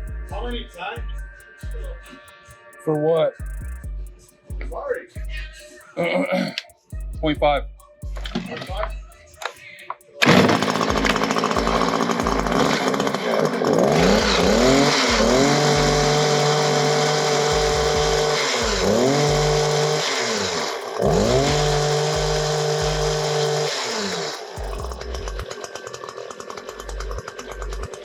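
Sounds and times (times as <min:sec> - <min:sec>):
hedge trimmer engine revving: 0:10.2 - 0:28.0.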